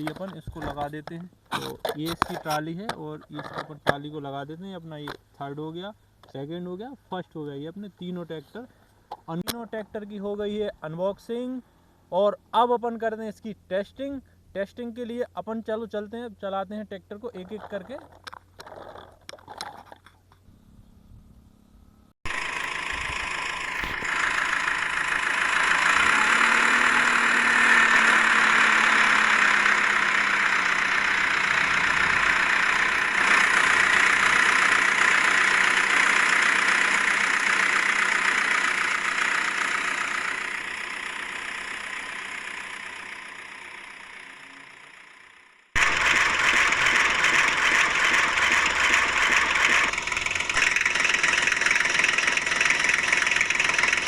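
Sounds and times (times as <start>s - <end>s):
engine starting abruptly: 22.3s - 54.0s
toy tractor engine idling: 22.3s - 54.0s.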